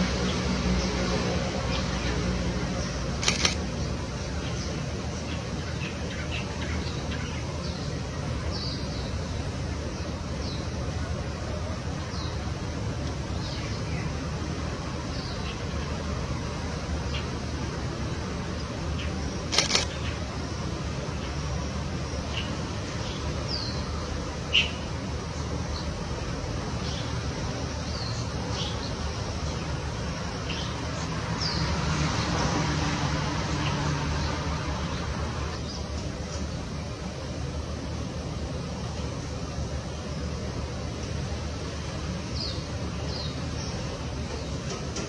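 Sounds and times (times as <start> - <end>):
outdoor hiss: 0.0 - 45.0.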